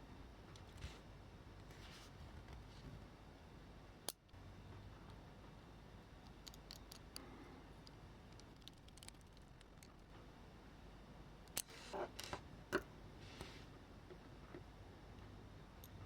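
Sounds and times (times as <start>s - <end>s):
small parts clicking: 6.2s - 10.1s.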